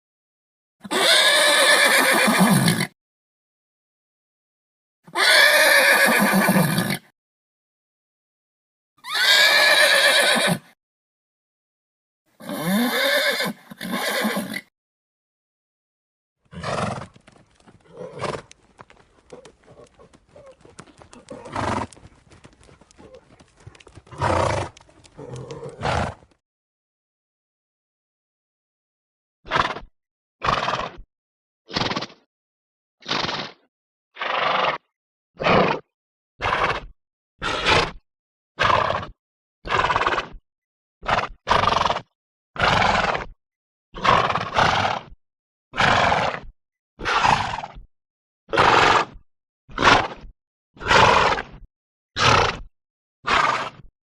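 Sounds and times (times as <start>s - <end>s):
horse snorting: 16.5s - 17.2s, 17.8s - 18.6s, 19.2s - 26.3s, 38.6s - 39.1s, 39.7s - 40.3s, 42.6s - 43.3s, 44.0s - 45.0s.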